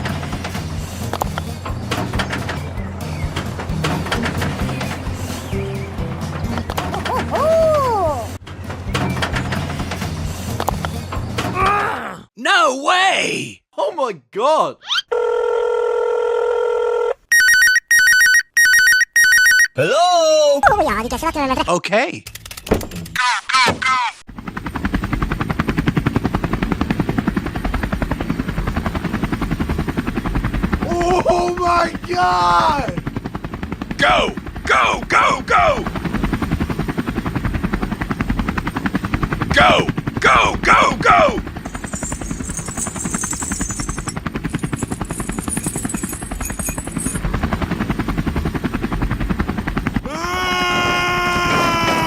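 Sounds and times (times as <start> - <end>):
machine motor chugging: 0.0 - 7.4, 41.4 - 49.3
cartoon engine chugging: 2.1 - 9.8.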